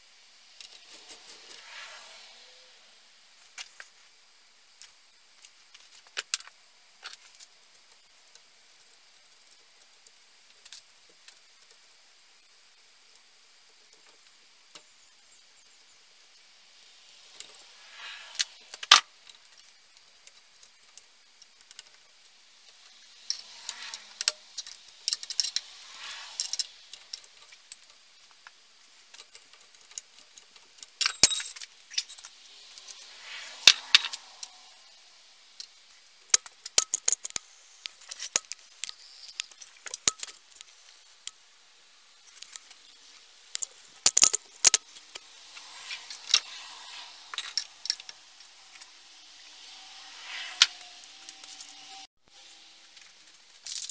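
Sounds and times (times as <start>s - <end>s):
metal parts and tools clinking: 22.8s - 28.2s, 29.0s - 34.8s, 42.2s - 48.9s, 53.0s - 53.9s.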